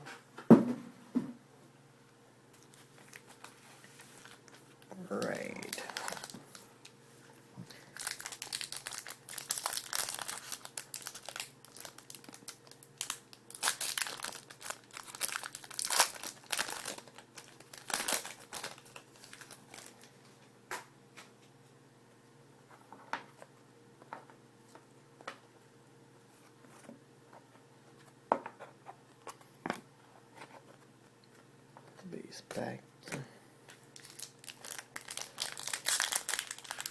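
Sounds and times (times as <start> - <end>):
wrappers tearing and crinkling: 2.7 - 6.9, 7.7 - 20.1, 33.7 - 36.9.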